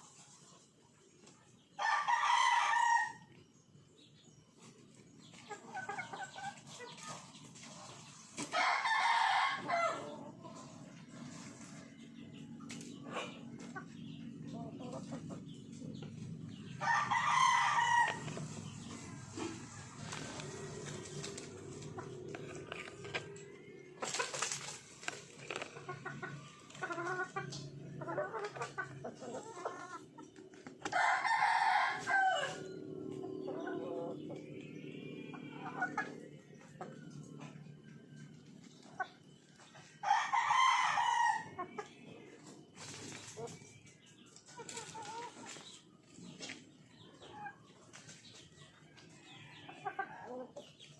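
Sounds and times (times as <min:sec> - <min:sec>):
rooster crowing: 0:01.8 - 0:03.3, 0:08.6 - 0:10.2, 0:16.8 - 0:18.3, 0:30.9 - 0:32.8, 0:40.0 - 0:41.5
chickens clucking: 0:02.8 - 0:50.9.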